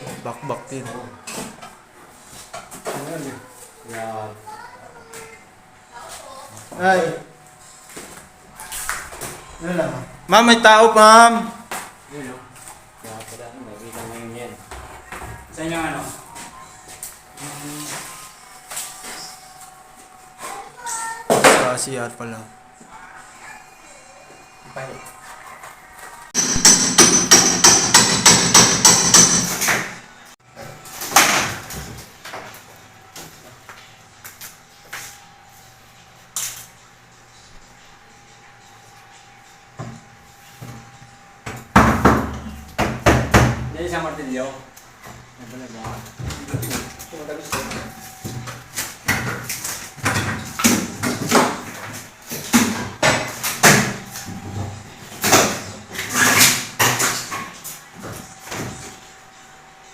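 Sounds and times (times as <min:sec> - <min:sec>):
hammer blows: 0:26.4 - 0:29.9.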